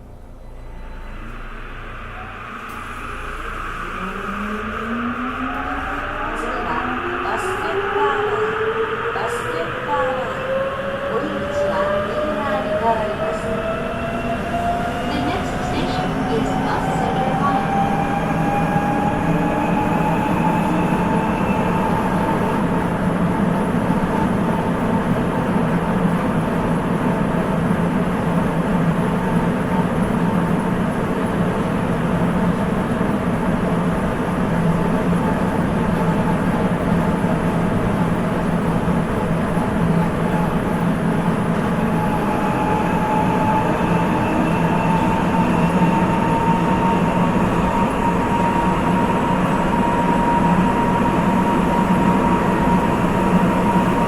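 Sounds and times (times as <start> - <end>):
subway train rumbling in tunnel: 0.0 - 54.0.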